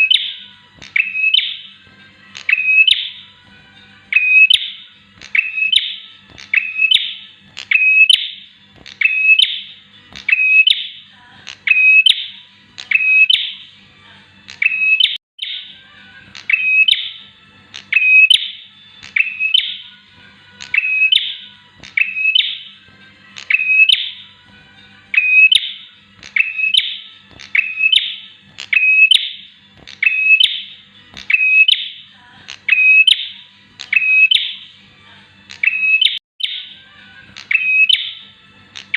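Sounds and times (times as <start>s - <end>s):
bird sharp high chirps: 0.0s - 1.8s, 2.4s - 3.3s, 4.1s - 13.7s, 14.5s - 15.8s, 16.4s - 17.2s, 17.8s - 20.0s, 20.6s - 22.8s, 23.4s - 24.4s, 25.1s - 34.7s, 35.5s - 38.2s.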